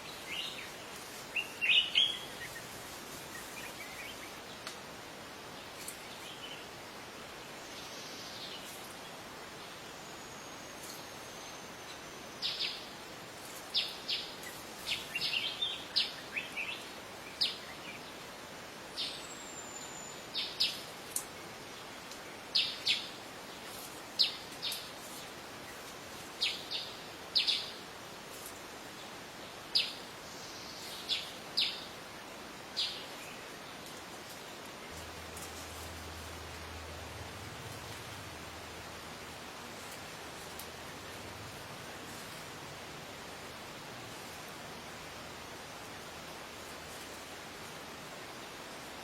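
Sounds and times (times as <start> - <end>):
birds chirping: 0.0 - 4.8, 13.7 - 18.2, 18.9 - 27.9, 29.4 - 42.5
steady hiss: 0.0 - 49.0.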